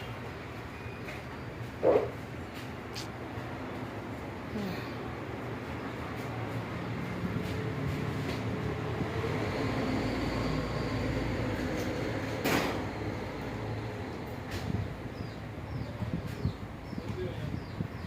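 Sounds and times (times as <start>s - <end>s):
sharp clunk: 12.4s - 12.8s.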